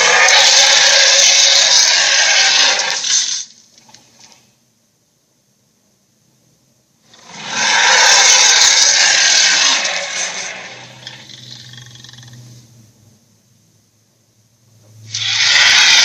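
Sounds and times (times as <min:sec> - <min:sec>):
monster roar: 0:00.0 - 0:03.3, 0:07.1 - 0:12.3, 0:15.1 - 0:16.0.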